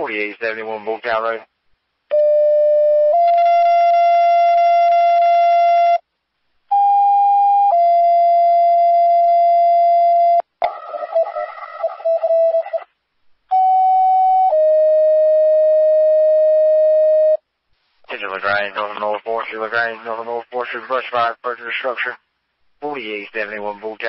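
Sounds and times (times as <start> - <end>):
wavering radio noise: 10.6 - 13.0, 18.0 - 24.0.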